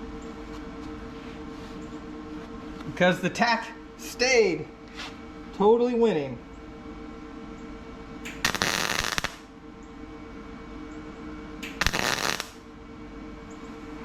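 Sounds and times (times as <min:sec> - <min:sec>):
welder crackling on sheet metal: 0:08.3 - 0:09.5, 0:11.6 - 0:12.6.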